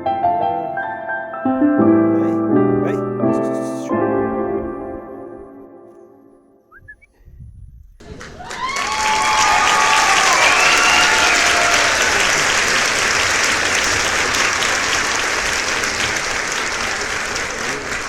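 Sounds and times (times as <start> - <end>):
crowd applauding: 8.0 - 18.0
people cheering: 8.0 - 18.0.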